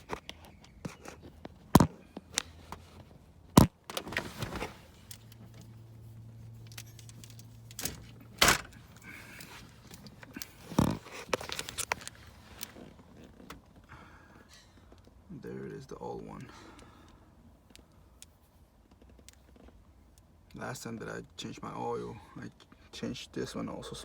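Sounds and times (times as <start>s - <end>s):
hands working a hose in an engine: 0.0s - 15.3s.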